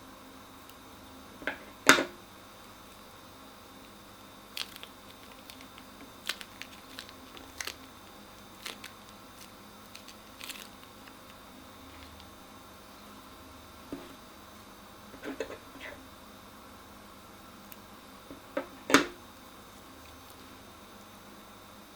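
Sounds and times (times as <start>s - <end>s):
crunchy slime crackling: 4.5s - 12.4s.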